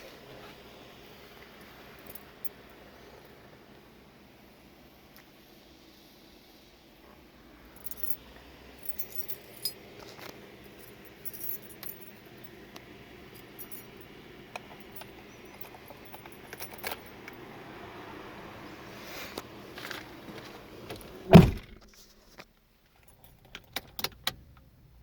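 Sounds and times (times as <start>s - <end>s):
faint background hum: 0.0s - 25.0s
keys jingling: 7.8s - 8.2s, 8.8s - 12.4s, 13.3s - 17.2s.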